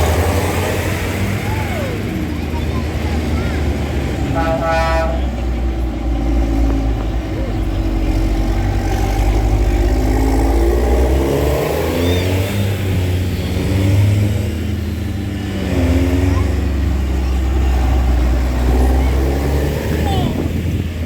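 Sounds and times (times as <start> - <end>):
tractor engines driving past: 0.0 - 21.0.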